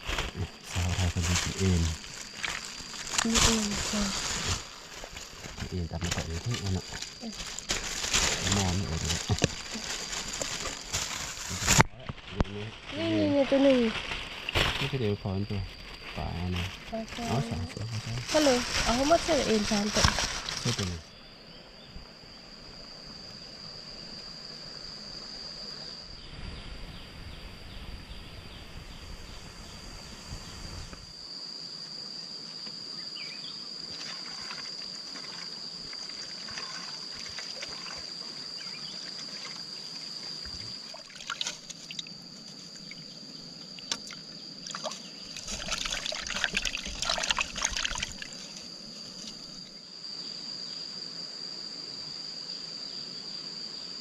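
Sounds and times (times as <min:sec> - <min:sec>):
insects droning: 0:00.0 - 0:54.0
water splashes: 0:33.9 - 0:39.7, 0:40.5 - 0:42.1, 0:43.8 - 0:48.4
water trickling and sloshing: 0:33.9 - 0:43.1, 0:43.8 - 0:49.6.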